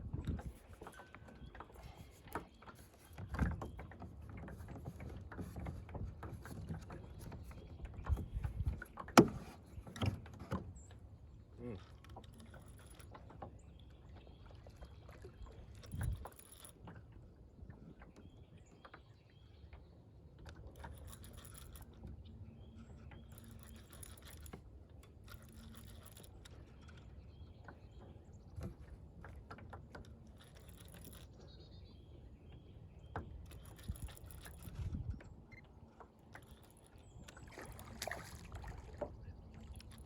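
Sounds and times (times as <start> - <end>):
low wind: 0.0 - 40.0
water rumble: 20.7 - 40.0
fishing reel clicking: 23.3 - 24.5, 33.5 - 34.8.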